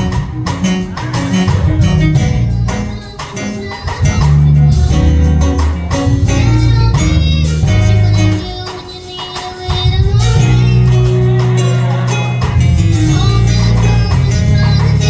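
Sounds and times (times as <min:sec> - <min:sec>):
heavy bass line: 0:00.0 - 0:08.6, 0:09.9 - 0:15.0
gospel choir and band: 0:00.0 - 0:15.0.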